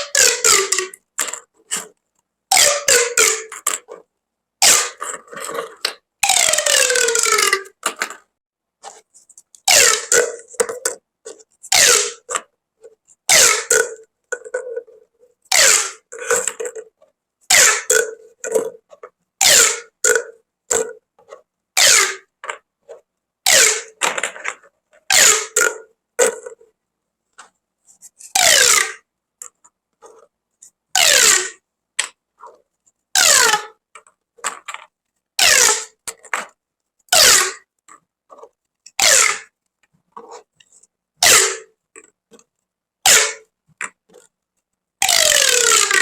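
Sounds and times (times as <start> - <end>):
plastic pop tubes buzzing: 2.5 - 3.9, 5.8 - 8.2, 9.7 - 11.0, 11.7 - 12.5, 13.3 - 14.9, 15.5 - 16.9, 17.5 - 18.8, 19.4 - 21.0, 21.8 - 22.6, 23.5 - 24.3, 28.4 - 29.0, 31.0 - 32.1, 33.2 - 33.8, 35.4 - 36.4, 37.1 - 37.7, 38.9 - 39.5, 41.2 - 42.5, 43.1 - 44.3, 45.0 - 46.0.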